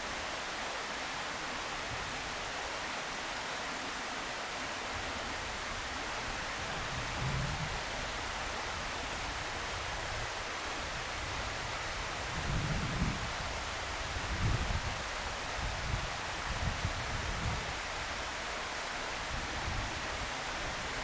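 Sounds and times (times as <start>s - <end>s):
outdoor background hiss: 0.0s - 21.0s
low wind rumbles on microphone: 6.6s - 8.0s, 11.0s - 17.8s.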